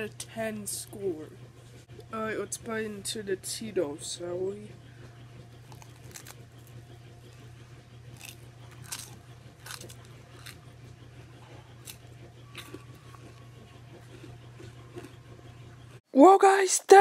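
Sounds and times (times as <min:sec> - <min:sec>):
steady low hum: 0:00.0 - 0:16.0
person chewing pizza: 0:05.1 - 0:15.7.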